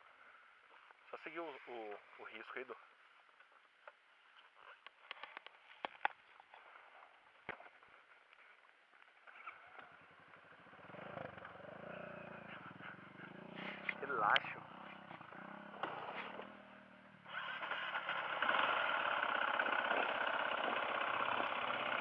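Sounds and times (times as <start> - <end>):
dirt bike engine: 9.2 - 22.0.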